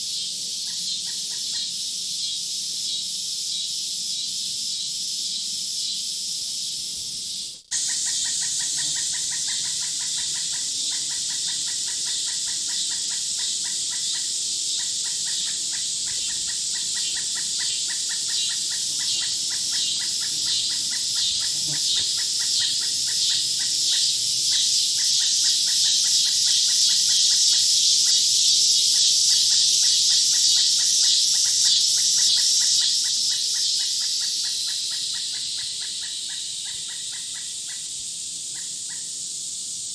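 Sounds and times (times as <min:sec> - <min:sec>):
high insect chorus: 0:00.0 - 0:39.9
repeated animal call: 0:07.7 - 0:27.4.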